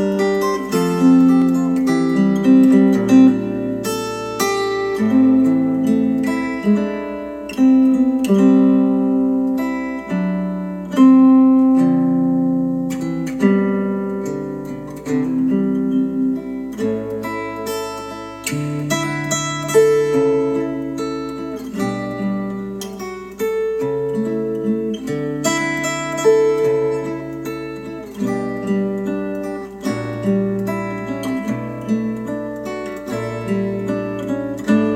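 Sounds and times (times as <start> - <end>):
acoustic guitar music: 0.0 - 34.9.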